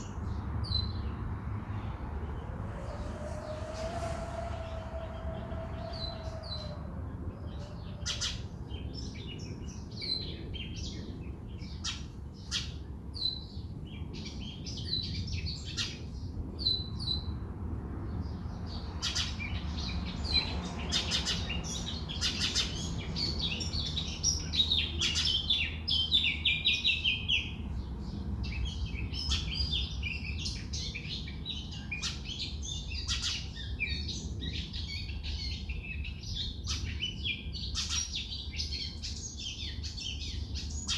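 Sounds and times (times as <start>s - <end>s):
birds chirping: 0.0s - 11.9s
low rumble: 0.1s - 9.0s.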